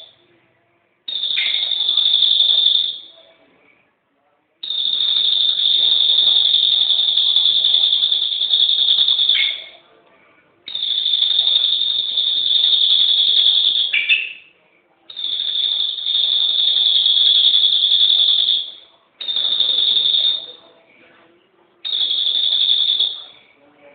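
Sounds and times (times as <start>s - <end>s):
high-pitched buzzing bird call: 1.1s - 3.2s, 4.6s - 9.8s, 10.7s - 14.5s, 15.1s - 20.6s, 21.8s - 23.3s.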